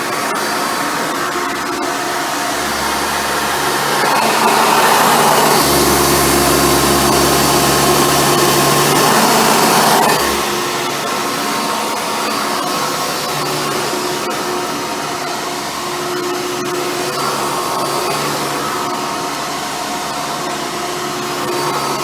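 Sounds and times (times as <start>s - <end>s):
upright vacuum cleaner running: 2.4s - 11.8s.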